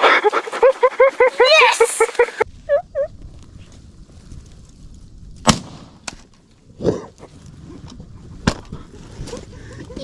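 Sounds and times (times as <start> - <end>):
shotgun blasts: 5.4 - 6.1.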